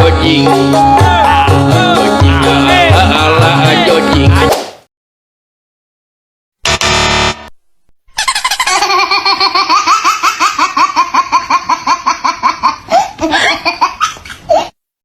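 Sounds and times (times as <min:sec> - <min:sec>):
high-pitched laughter: 0:08.1 - 0:14.8.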